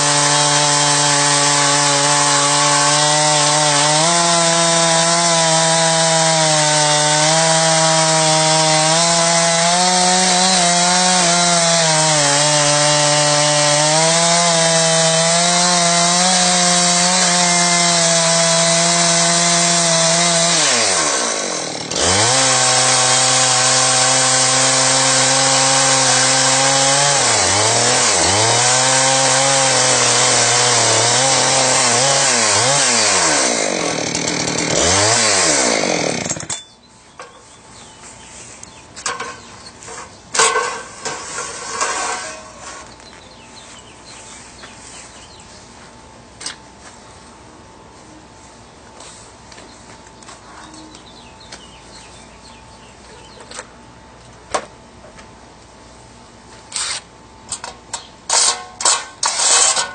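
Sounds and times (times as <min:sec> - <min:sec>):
chainsaw cutting log: 0:00.0 - 0:36.6, 0:39.0 - 0:43.0, 0:56.7 - 0:59.9.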